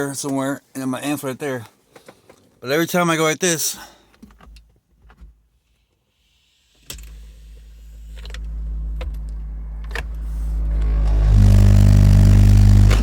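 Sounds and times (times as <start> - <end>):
subwoofer low rumble and hum: 6.8 - 13.0.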